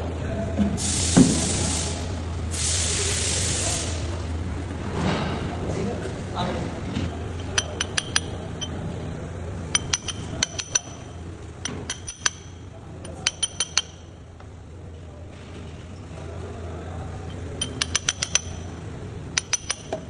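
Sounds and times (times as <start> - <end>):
steady low hum: 0.0 - 20.0
metal tool tapping metal: 7.3 - 8.8, 9.7 - 14.2, 17.3 - 18.7, 19.3 - 20.0.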